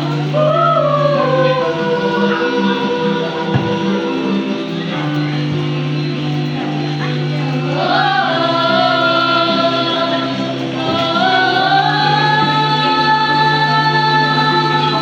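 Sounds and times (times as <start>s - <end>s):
low sustained accompaniment: 0.0s - 15.0s
person singing long notes: 0.0s - 15.0s.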